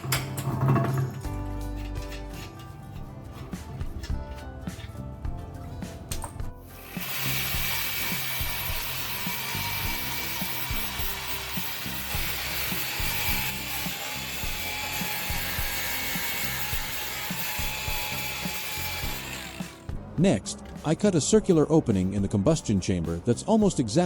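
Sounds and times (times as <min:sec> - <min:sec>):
background music: 0:00.0 - 0:24.0
power tool grinding steel: 0:06.6 - 0:19.9.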